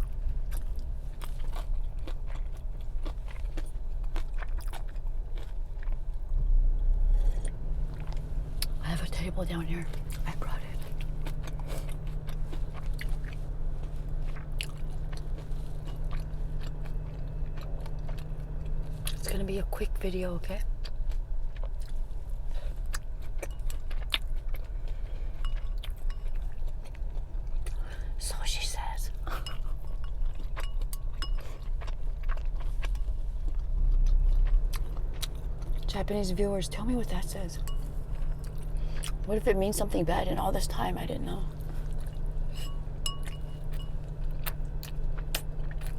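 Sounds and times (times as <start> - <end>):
chewing and biting: 0.0 - 6.4, 7.1 - 19.6, 20.4 - 36.2, 36.8 - 45.9
low rumble: 0.0 - 45.9
steady low hum: 0.0 - 45.9
chopsticks and dishes clinking: 29.3 - 31.6, 42.5 - 44.0.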